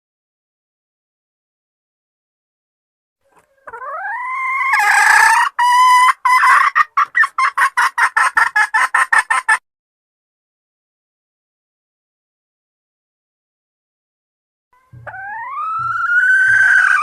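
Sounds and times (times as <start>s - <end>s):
hen clucking: 3.2s - 9.6s, 14.8s - 17.0s
junglefowl hen calling: 3.2s - 9.6s, 14.8s - 17.0s.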